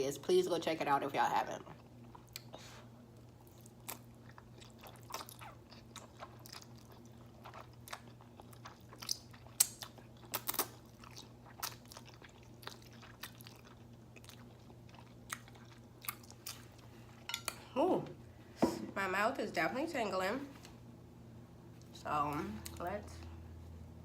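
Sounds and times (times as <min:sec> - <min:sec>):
faint steady hum: 0:00.0 - 0:24.0
chewing and slurping noodles: 0:03.4 - 0:17.3.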